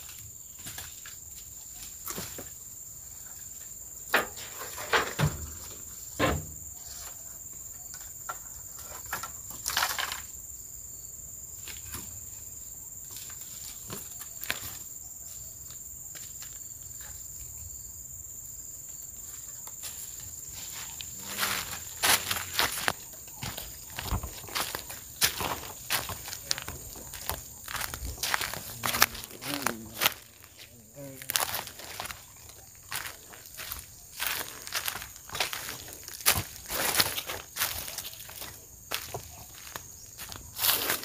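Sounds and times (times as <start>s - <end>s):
footsteps in undergrowth: 0.0s - 3.8s, 11.6s - 17.4s, 18.9s - 41.0s
high insect drone: 0.0s - 41.0s.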